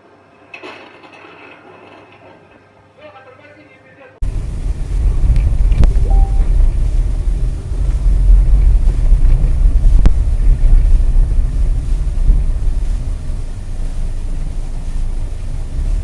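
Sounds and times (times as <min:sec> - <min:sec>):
car road and engine rumble: 0:04.2 - 0:16.0.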